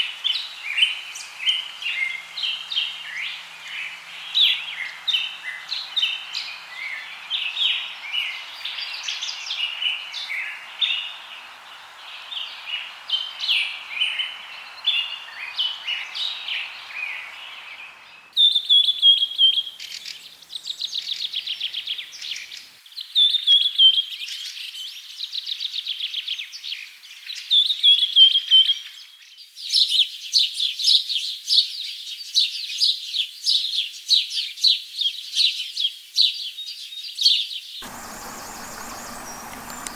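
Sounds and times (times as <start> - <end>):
low hiss: 0.0 - 18.1, 37.8 - 39.9
birds chirping and singing: 37.8 - 39.9.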